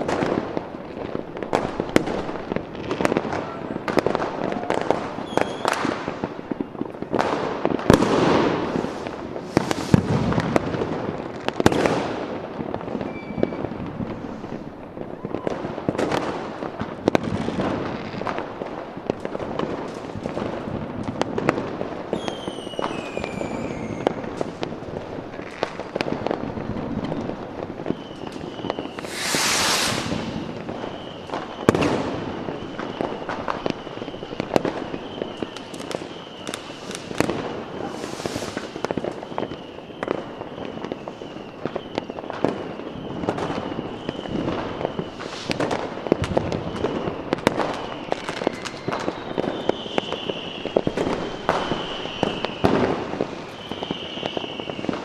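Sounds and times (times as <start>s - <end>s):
fireworks bangs and crackling: 0.0s - 55.0s
fireworks whistles falling in pitch: 1.0s - 12.1s, 12.8s - 16.3s, 21.5s - 24.6s, 27.0s - 55.0s
loud firework hiss: 7.4s - 11.1s, 14.0s - 14.8s, 27.1s - 40.2s, 43.2s - 55.0s.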